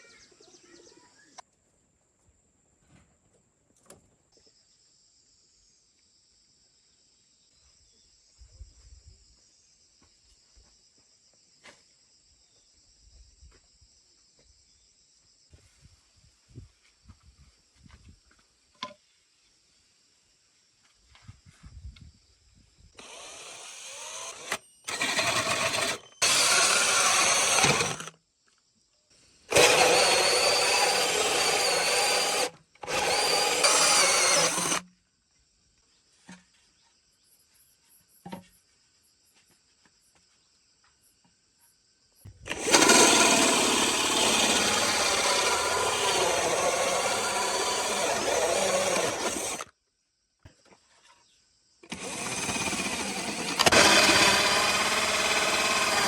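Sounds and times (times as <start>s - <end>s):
power tools running: 23.0s - 28.1s, 29.5s - 34.8s, 42.4s - 49.7s, 51.8s - 56.0s.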